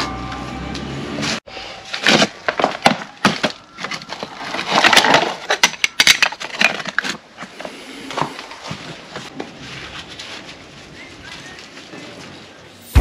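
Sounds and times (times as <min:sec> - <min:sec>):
hard objects clattering: 0:01.8 - 0:09.6.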